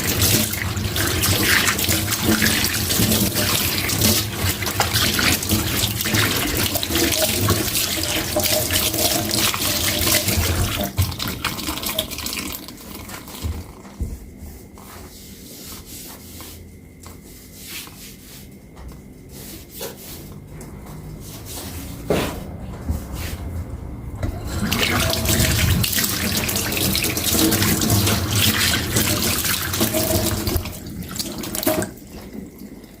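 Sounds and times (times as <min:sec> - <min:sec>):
tap running into sink: 0:00.0 - 0:14.2.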